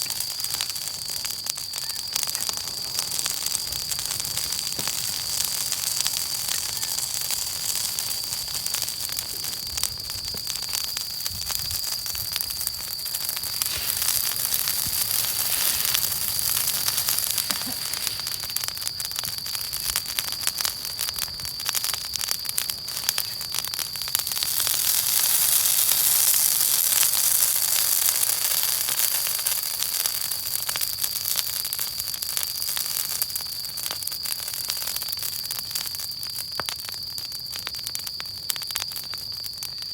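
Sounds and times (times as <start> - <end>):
bonfire crackling and popping: 0.0 - 39.9
steady hiss: 2.2 - 34.0.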